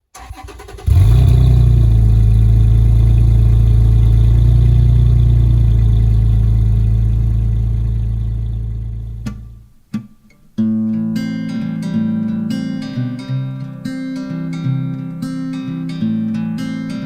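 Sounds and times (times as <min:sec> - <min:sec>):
vehicle engine humming: 0:00.2 - 0:09.6.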